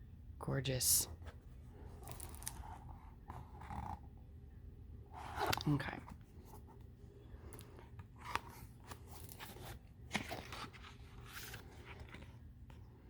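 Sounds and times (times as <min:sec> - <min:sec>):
book pages rustling: 0:01.2 - 0:04.0, 0:05.2 - 0:13.0.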